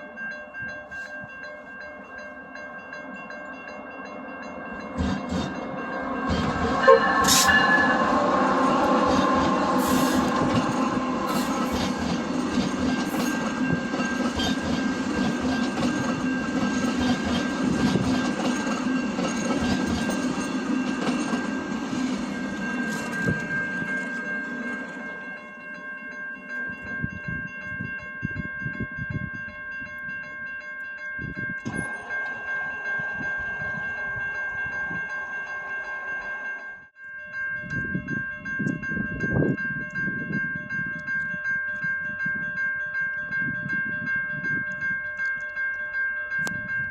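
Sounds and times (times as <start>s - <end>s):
train wheel and rail noise: 0.0s - 30.5s, 31.2s - 37.0s
level crossing bell ringing: 0.0s - 46.9s.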